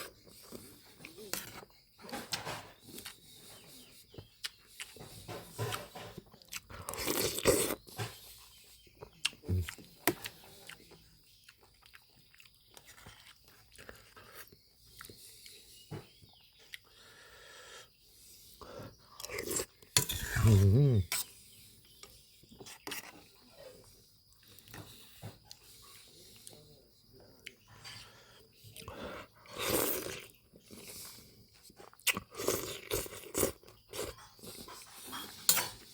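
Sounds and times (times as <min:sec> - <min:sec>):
person chewing food: 0:00.0 - 0:17.8, 0:18.6 - 0:26.6, 0:27.3 - 0:35.9.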